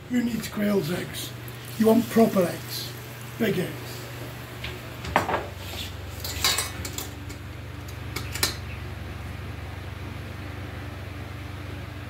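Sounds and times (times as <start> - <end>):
electric fan humming: 0.0 - 12.0
utensils clinking against a bowl: 6.2 - 7.4.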